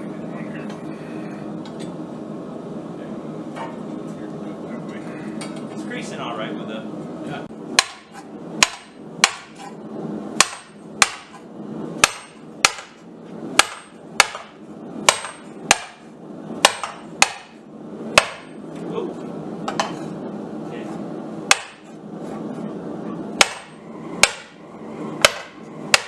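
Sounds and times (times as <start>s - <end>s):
hammer striking steel on anvil: 7.8s - 9.8s, 10.4s - 11.4s, 12.0s - 13.0s, 13.6s - 16.0s, 16.6s - 17.6s, 18.2s - 18.5s, 21.5s - 21.9s, 23.4s - 24.6s, 25.2s - 26.0s.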